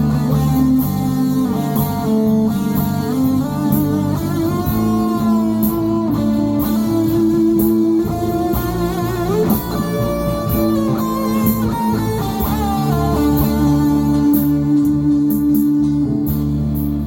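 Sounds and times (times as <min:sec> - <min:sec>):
cymbal beat: 0:00.0 - 0:17.0
slow ballad with guitar lead: 0:00.0 - 0:17.0.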